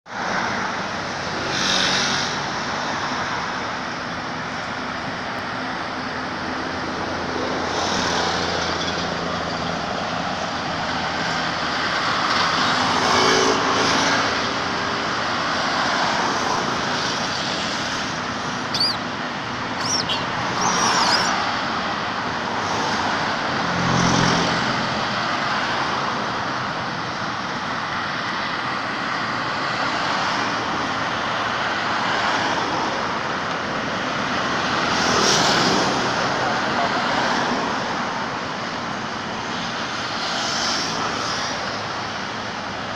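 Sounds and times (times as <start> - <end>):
road traffic passing: 0.1 - 42.9
short high squeaks: 18.7 - 19.1, 19.8 - 21.4.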